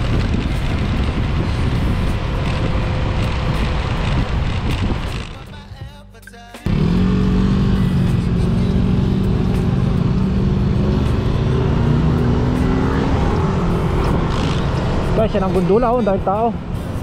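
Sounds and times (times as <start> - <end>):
motorcycle engine: 0.0 - 5.5, 6.7 - 16.7.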